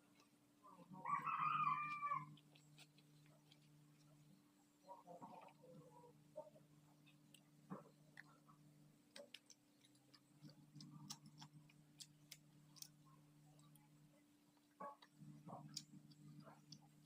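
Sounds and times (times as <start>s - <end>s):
steady low hum: 0.0s - 17.0s
wet mouth clicks from chewing: 9.1s - 13.0s.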